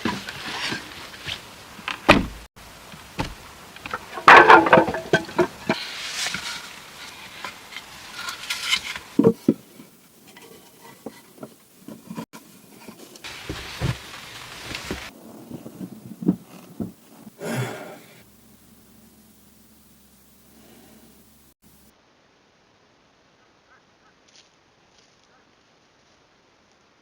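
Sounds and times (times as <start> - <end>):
rustling and scraping: 0.0 - 2.5, 3.2 - 18.2
knocks of handling things: 3.2 - 6.5, 8.2 - 14.1, 14.7 - 17.7.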